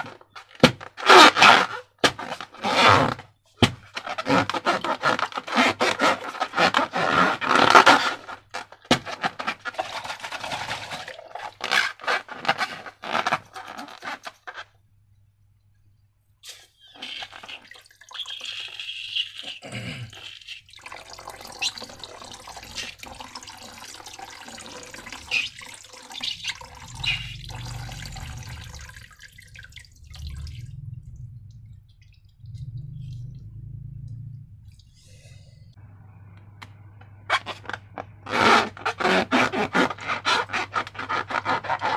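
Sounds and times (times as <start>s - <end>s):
wet slime squelching: 16.9s - 30.8s.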